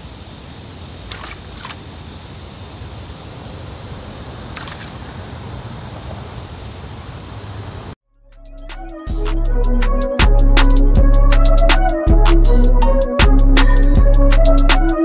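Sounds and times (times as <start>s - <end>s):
outdoor background noise: 0.0s - 8.0s
sharp clicks: 4.5s - 5.0s.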